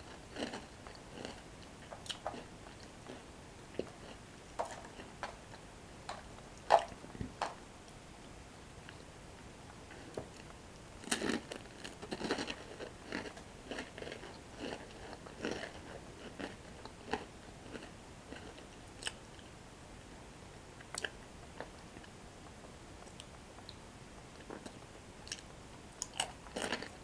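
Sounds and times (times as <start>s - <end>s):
chewing crunchy breadsticks: 0.0s - 7.6s, 9.8s - 19.5s, 24.4s - 27.0s.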